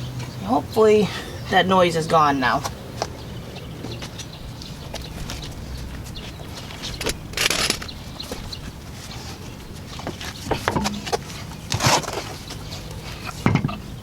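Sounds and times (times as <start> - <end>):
tools and car parts clanking: 4.0 - 13.9.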